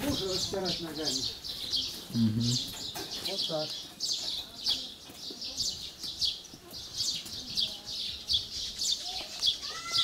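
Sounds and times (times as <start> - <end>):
small bird chirping: 0.0 - 10.0.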